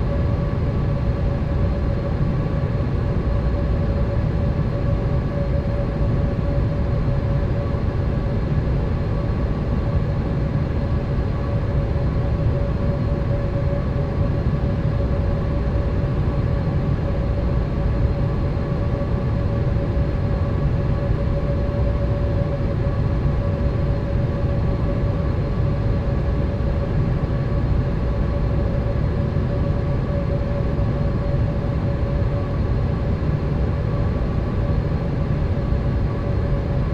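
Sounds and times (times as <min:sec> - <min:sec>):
constant hum: 0:00.0 - 0:36.9.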